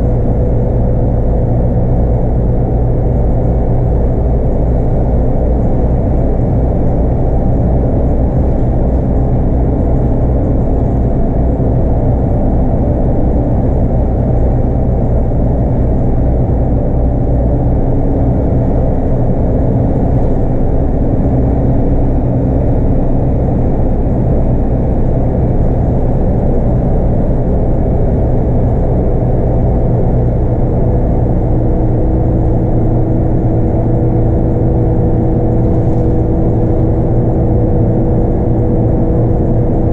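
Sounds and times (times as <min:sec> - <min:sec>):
bus diesel engine droning: 0:00.0 - 0:39.9
road rumble: 0:00.0 - 0:39.9.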